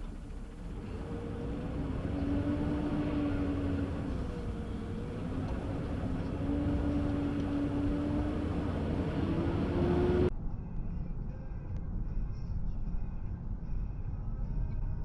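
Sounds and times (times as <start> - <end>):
road noise: 0.0 - 10.3
vehicle engine hum: 0.0 - 15.0.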